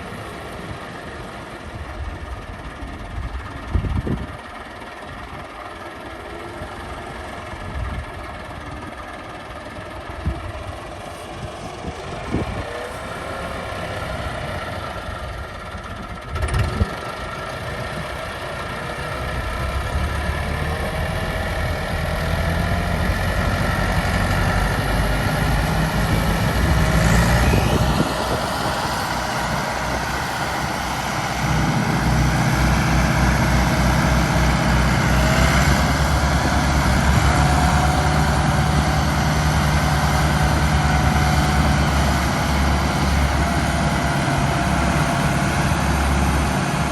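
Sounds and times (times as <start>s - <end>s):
diesel tractor engines under load: 0.0s - 46.9s.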